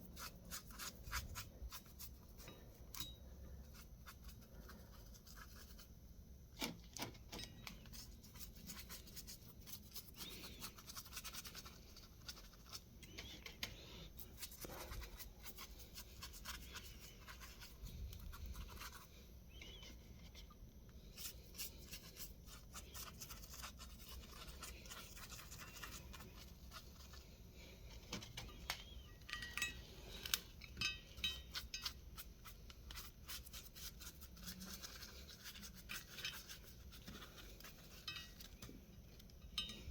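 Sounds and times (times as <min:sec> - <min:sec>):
brush scrubbing metal: 0:21.2 - 0:27.2.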